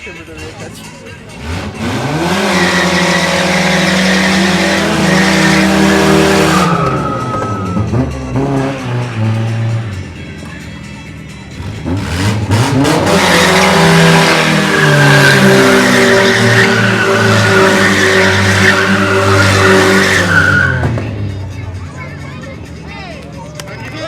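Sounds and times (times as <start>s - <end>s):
car engine revving: 0.0s - 22.6s
tyres squealing and skidding: 0.2s - 10.0s, 11.0s - 22.7s.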